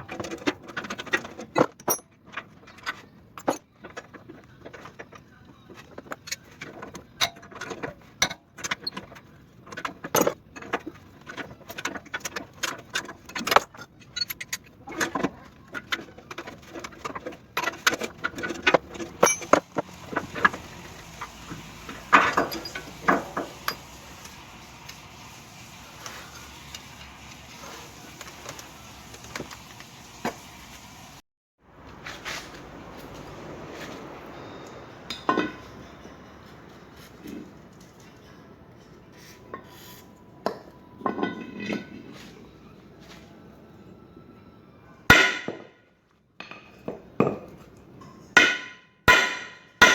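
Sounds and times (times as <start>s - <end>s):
metal parts and tools clinking: 0.0s - 23.9s.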